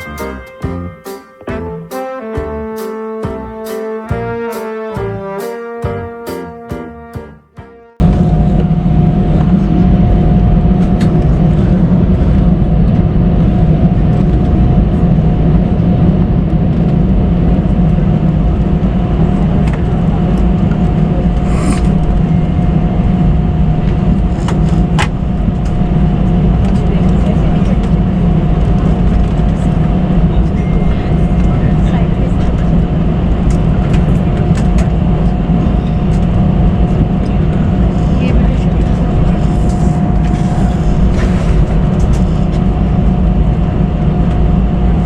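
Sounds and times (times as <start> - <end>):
jet engine cabin drone: 8.0 - 45.0
thin steady whine: 8.0 - 45.0.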